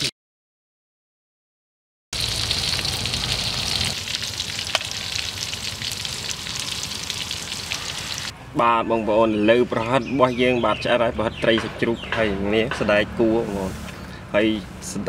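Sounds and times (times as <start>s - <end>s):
food sizzling in hot oil: 2.2s - 8.3s.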